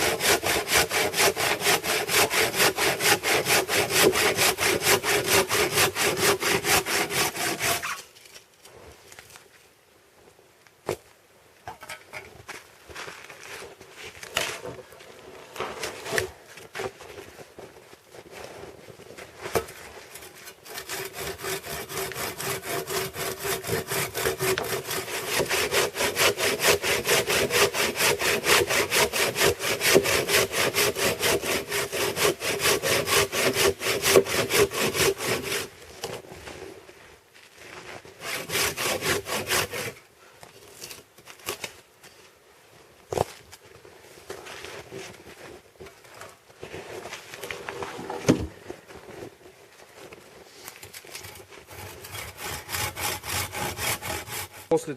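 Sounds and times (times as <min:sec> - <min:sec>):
saw cutting log: 0:00.0 - 0:08.0, 0:19.6 - 0:36.2, 0:38.2 - 0:40.0, 0:50.8 - 0:54.9.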